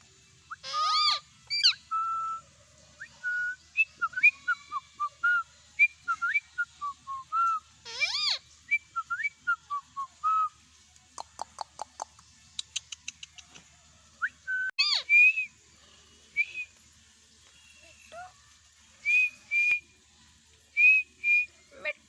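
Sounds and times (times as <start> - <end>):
harsh parrot call: 0.5 - 1.8, 7.8 - 8.4
parrot whistling chirps: 0.5 - 2.4, 3.0 - 10.6, 14.2 - 15.5, 20.8 - 22.0.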